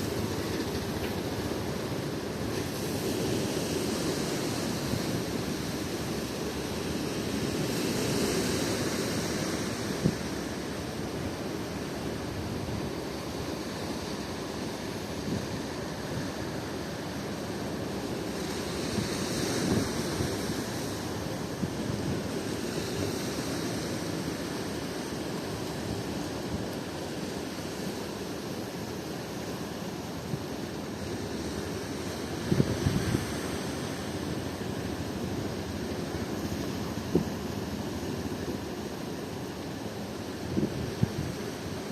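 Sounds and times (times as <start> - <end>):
sea surf breaking: 0.0 - 41.9.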